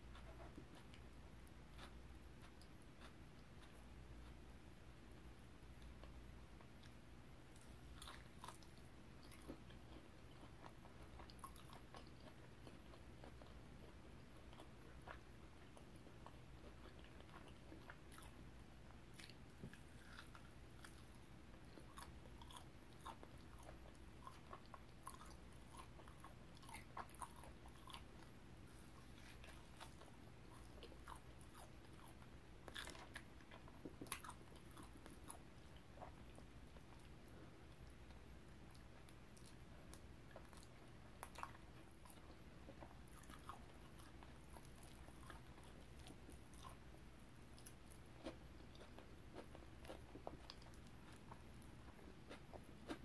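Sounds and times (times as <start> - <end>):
steady low hum: 0.0 - 53.0
wet chewing mouth sounds: 0.1 - 4.5, 7.6 - 18.5, 19.1 - 46.9, 47.5 - 53.0.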